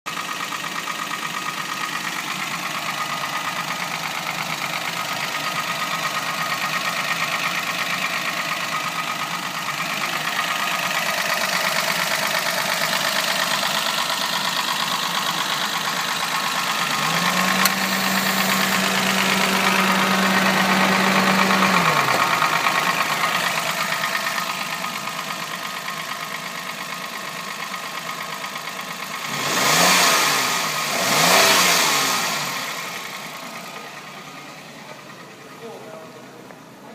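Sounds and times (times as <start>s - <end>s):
car engine idling: 0.1s - 36.9s
hum rising in pitch: 16.9s - 22.6s.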